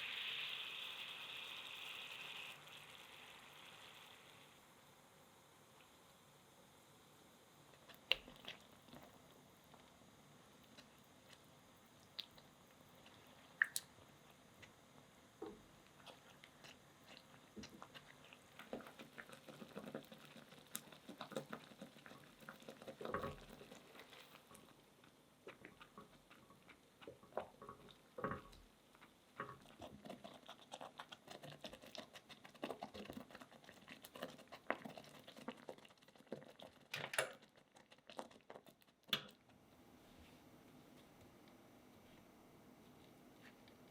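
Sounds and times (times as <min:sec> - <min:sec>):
wet squishes of food: 0:07.7 - 0:39.8
soft taps and clicks of utensils: 0:25.5 - 0:29.8, 0:39.1 - 0:39.5.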